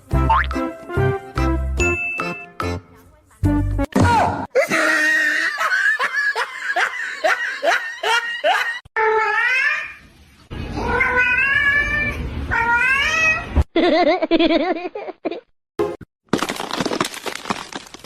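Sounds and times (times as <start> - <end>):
cats meowing and yowling: 10.8 - 13.5.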